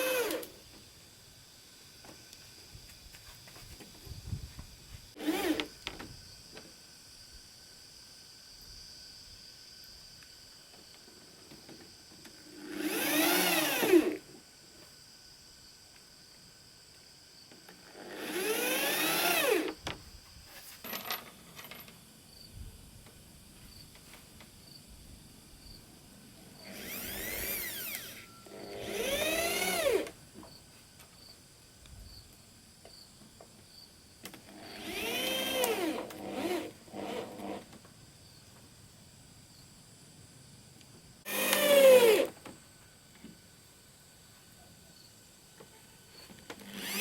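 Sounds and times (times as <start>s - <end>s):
power drill bursts: 0.0s - 0.5s, 5.2s - 5.7s, 12.5s - 14.2s, 18.0s - 19.8s, 26.6s - 30.1s, 34.5s - 37.6s, 41.2s - 42.4s, 46.6s - 47.0s.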